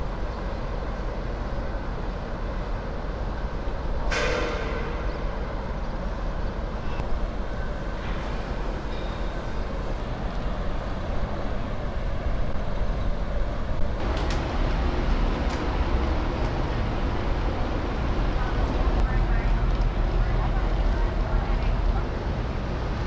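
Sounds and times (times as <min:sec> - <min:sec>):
moving vehicle rumble: 0:13.7 - 0:22.9.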